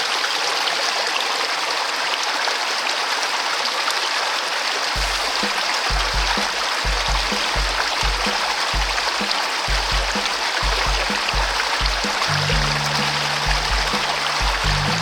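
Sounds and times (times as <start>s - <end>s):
background music with bass beat: 5.0s - 15.0s.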